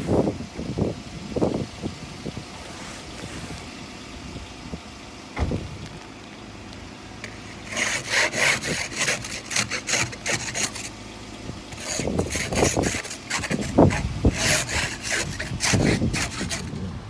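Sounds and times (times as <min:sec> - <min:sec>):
ice scraper on windshield: 0:07.2 - 0:17.0.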